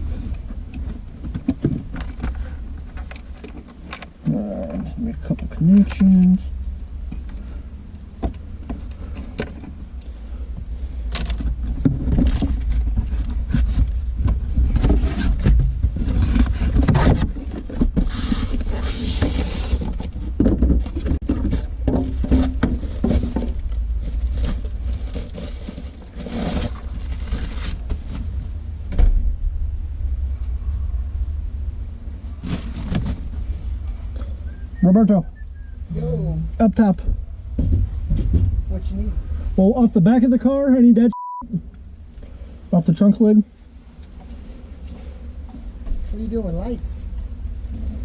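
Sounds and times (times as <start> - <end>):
steady low rumble: 0.0 - 48.0
hands clicking and rustling wires: 0.3 - 28.4.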